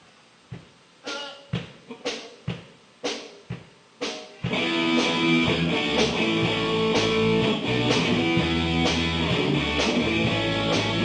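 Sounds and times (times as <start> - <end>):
live rock band playing: 4.0 - 11.0.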